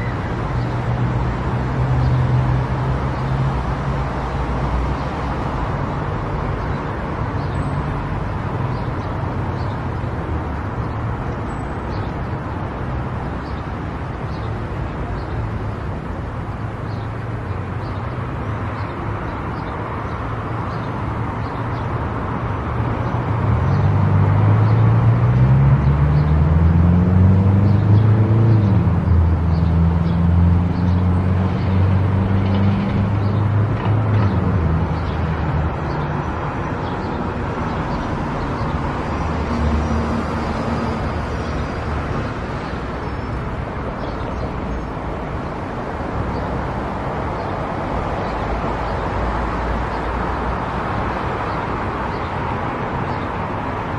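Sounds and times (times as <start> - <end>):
tyre and road noise: 0.0 - 53.9.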